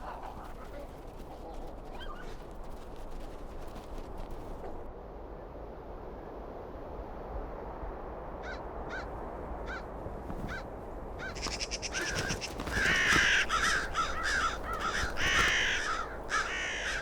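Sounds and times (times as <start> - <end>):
low background noise: 0.0 - 17.0
crows cawing: 8.4 - 17.0.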